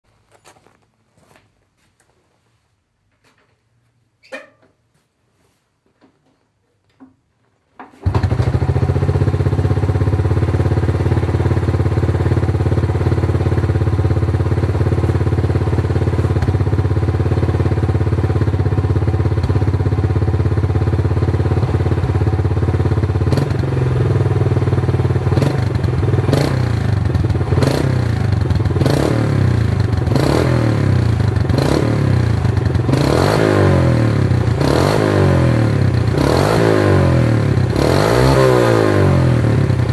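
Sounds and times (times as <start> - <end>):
motorcycle engine idling: 8.1 - 33.1.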